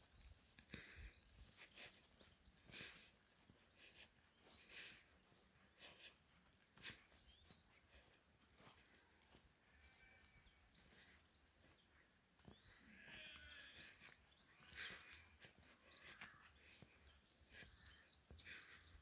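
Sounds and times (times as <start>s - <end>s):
bird calls: 0.0s - 19.0s
faint rural ambience: 0.0s - 19.0s.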